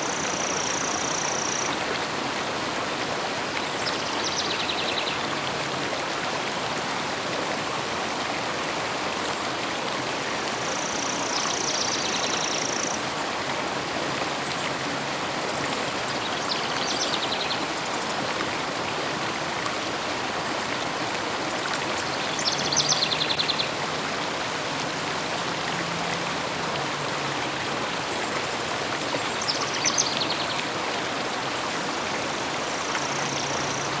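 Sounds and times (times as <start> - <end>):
river flowing: 0.0 - 34.0.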